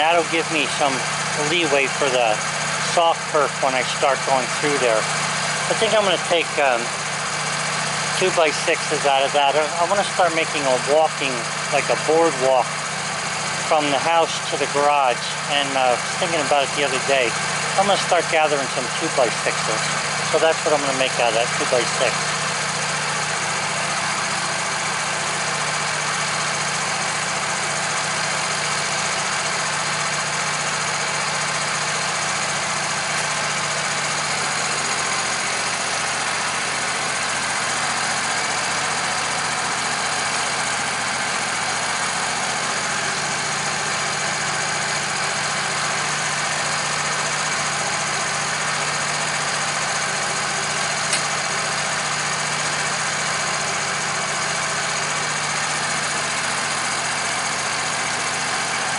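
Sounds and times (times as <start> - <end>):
machine motor humming: 0.0 - 58.9.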